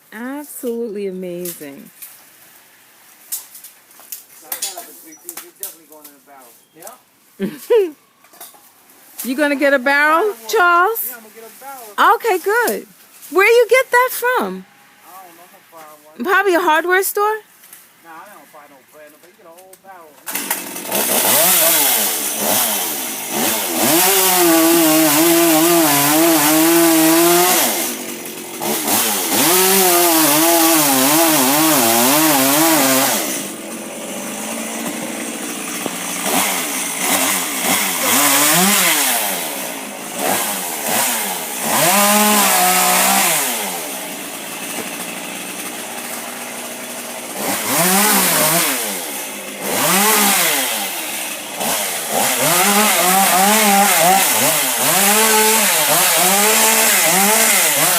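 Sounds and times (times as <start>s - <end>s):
chainsaw cutting wood: 9.1s - 11.2s, 12.0s - 14.4s, 19.4s - 57.9s.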